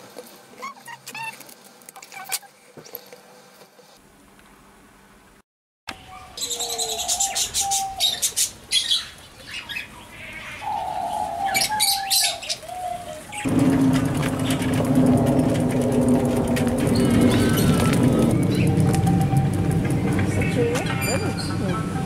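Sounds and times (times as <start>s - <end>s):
birds chirping: 5.9s - 22.0s
steady low hum: 13.5s - 22.0s.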